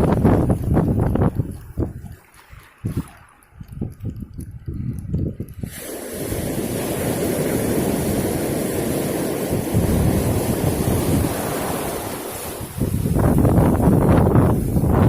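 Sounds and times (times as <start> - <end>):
wind buffeting microphone: 0.0 - 15.0
surf rushing: 5.6 - 15.0.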